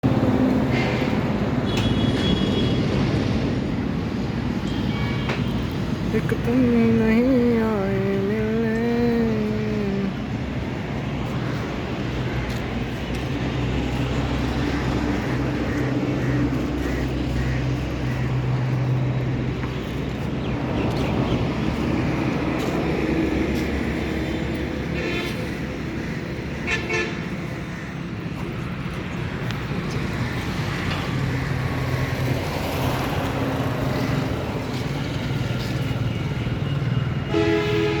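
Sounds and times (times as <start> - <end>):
road traffic engines: 0.0 - 38.0.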